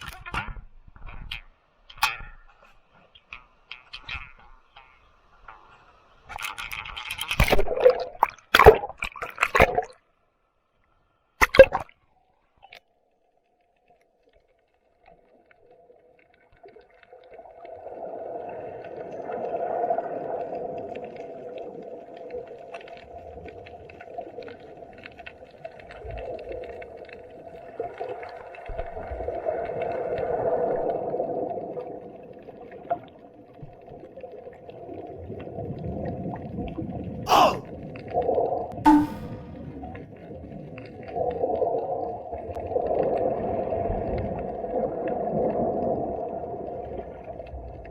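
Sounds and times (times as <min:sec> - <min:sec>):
water splashes: 0:06.3 - 0:10.0, 0:11.4 - 0:11.9.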